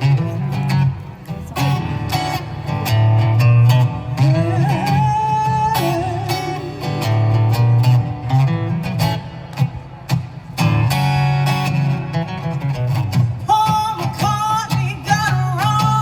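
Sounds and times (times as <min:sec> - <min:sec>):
acoustic guitar playing: 0:00.0 - 0:16.0
person singing: 0:04.2 - 0:07.0, 0:13.5 - 0:16.0.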